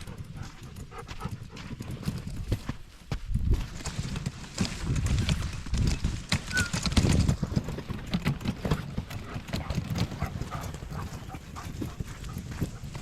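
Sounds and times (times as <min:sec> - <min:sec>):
footsteps outdoors: 0:00.0 - 0:13.0.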